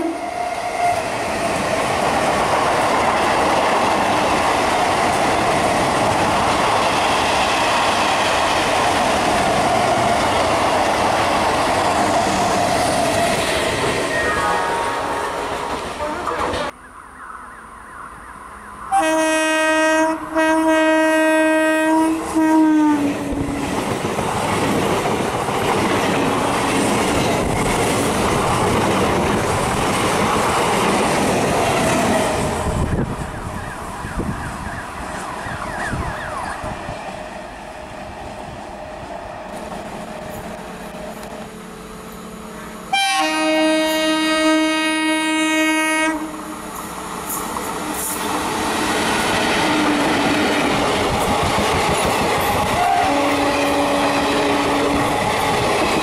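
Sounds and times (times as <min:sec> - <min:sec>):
train rushing past: 0:00.0 - 0:56.0
locomotive horn steady blast: 0:14.2 - 0:16.7, 0:18.6 - 0:23.4, 0:42.4 - 0:46.6, 0:52.7 - 0:55.1
train air horn blasts: 0:14.3 - 0:16.6, 0:18.9 - 0:23.6, 0:42.6 - 0:46.6, 0:52.7 - 0:55.1.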